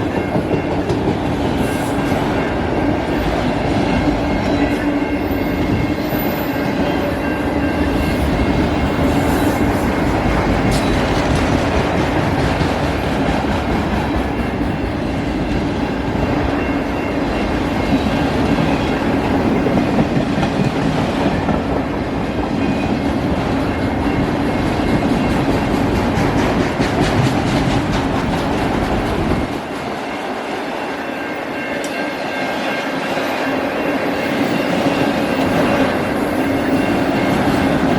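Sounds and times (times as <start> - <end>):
clickety-clack over rail joints: 0.0 - 30.1
train wheels rumbling on rail: 0.0 - 37.9.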